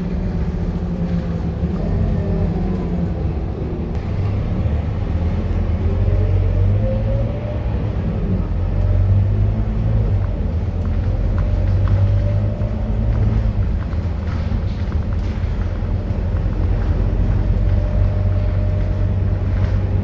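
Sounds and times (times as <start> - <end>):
bus diesel engine rumbling: 0.0 - 20.0.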